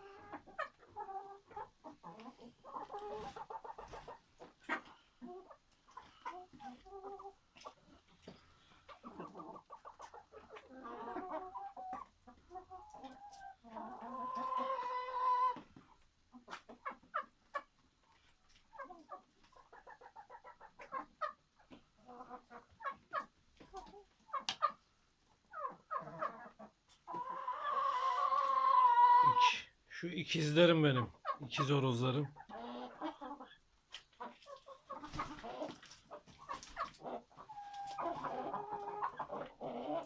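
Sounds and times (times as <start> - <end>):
chickens clucking: 0.0 - 40.0
loud chicken call: 27.7 - 29.6.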